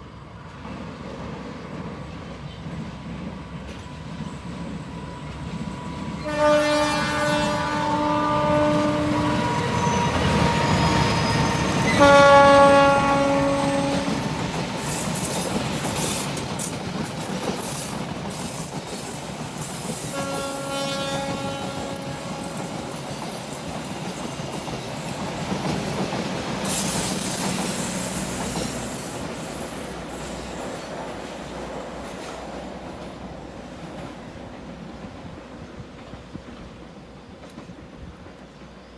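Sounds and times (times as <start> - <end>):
train wheels rumbling on rails: 0.0 - 38.9
train horn blasts: 6.2 - 14.4, 20.0 - 22.6.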